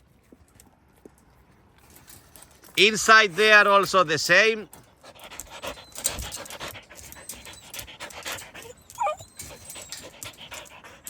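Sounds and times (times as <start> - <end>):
dog panting quickly: 4.8 - 11.0
dog whining: 5.3 - 11.0.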